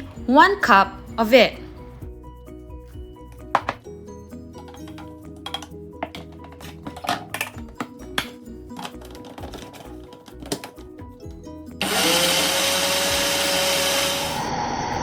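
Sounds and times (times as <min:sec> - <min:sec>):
background music: 0:00.0 - 0:15.0
electric blender grinding: 0:11.8 - 0:15.0.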